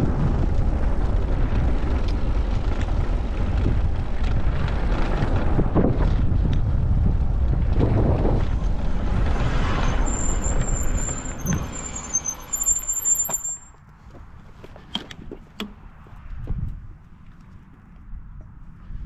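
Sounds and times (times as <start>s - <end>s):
wind on microphone: 0.0s - 11.9s, 16.2s - 17.0s
bicycle rolling noise: 0.0s - 19.0s
bicycle brakes squealing: 9.6s - 13.8s.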